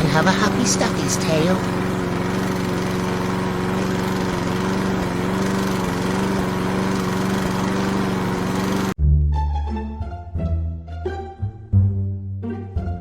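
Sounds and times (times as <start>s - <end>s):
lawn mower engine running: 0.0s - 9.0s.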